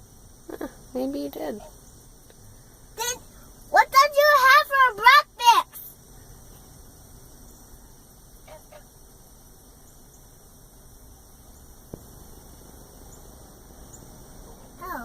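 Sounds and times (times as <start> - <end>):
steady low hum: 0.0 - 15.0
bird chirping: 9.7 - 10.5, 11.2 - 14.8.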